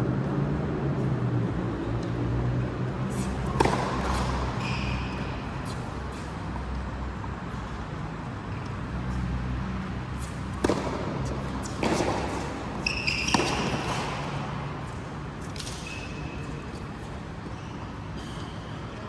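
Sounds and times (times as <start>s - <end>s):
racket striking ball: 3.1s - 5.7s, 10.3s - 15.8s
brief high squeak: 4.0s - 5.3s, 12.8s - 14.1s.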